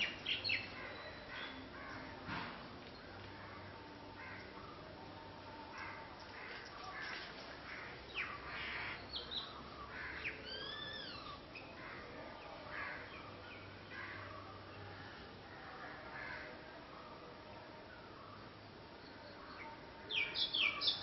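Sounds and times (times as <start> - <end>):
birds calling: 0.0 - 2.2.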